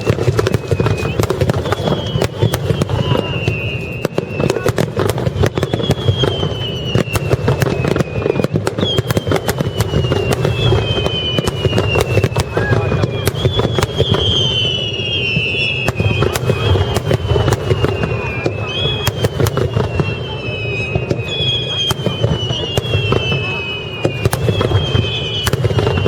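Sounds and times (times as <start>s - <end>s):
fireworks bangs and booms: 0.0s - 26.0s
whistling firework shells: 0.0s - 26.0s.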